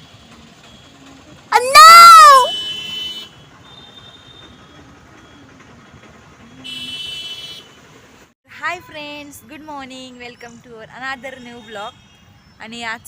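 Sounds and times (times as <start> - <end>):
low road noise: 0.0 - 13.0
vehicle horns honking: 2.4 - 4.5, 6.6 - 7.7.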